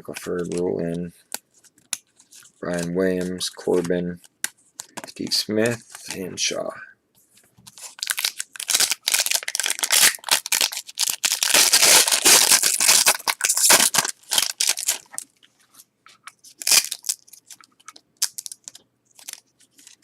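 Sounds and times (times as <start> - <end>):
wrapper tearing and crinkling: 7.7 - 15.3, 16.5 - 20.0.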